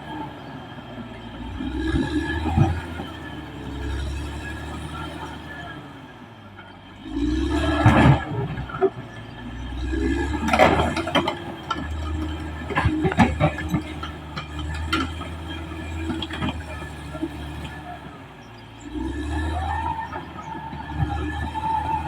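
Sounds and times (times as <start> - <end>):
bulldozer diesel engine rumble: 0.0 - 22.0
metallic clanks and knocks: 10.4 - 16.9.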